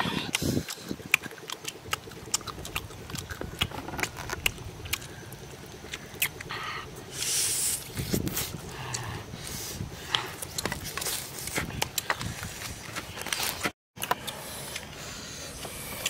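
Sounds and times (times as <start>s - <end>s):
person chewing with wet smacks: 0.3s - 6.5s.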